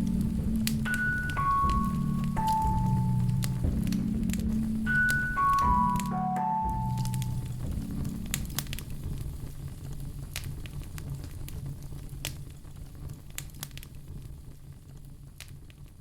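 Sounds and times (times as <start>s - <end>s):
wood fire crackling: 0.0s - 6.0s, 6.9s - 16.0s
soft melodic music: 0.0s - 9.2s.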